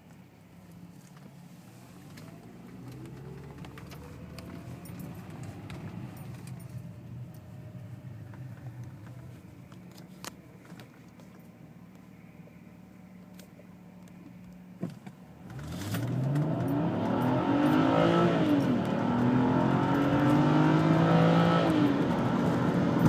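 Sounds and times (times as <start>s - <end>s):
car engine accelerating: 1.8s - 10.0s, 15.4s - 23.0s.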